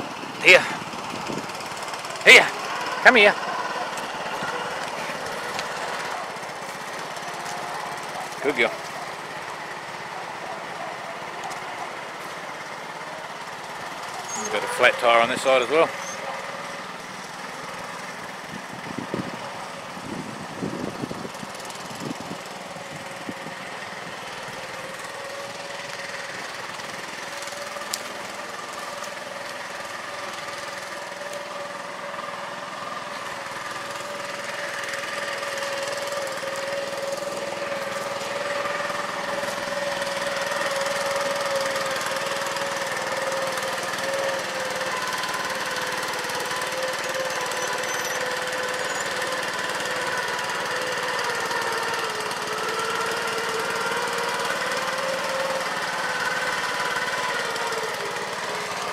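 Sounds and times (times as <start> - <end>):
tractor engine running: 0.0 - 58.9.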